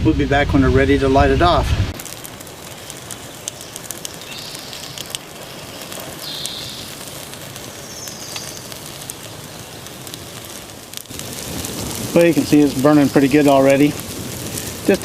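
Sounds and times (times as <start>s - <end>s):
fire crackling in a barrel: 0.3s - 15.0s
bird calls: 3.3s - 8.8s.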